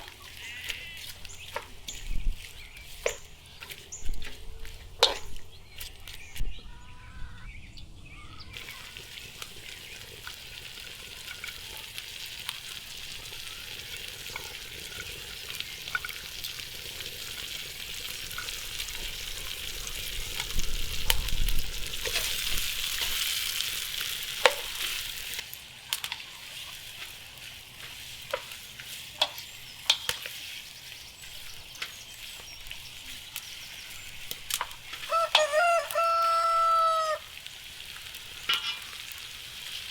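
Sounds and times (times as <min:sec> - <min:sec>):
food sizzling in pan: 0:00.0 - 0:06.4, 0:08.6 - 0:39.9
stirring utensil scraping: 0:00.0 - 0:06.4, 0:08.6 - 0:35.9, 0:38.2 - 0:39.9
rooster crowing: 0:35.0 - 0:37.3.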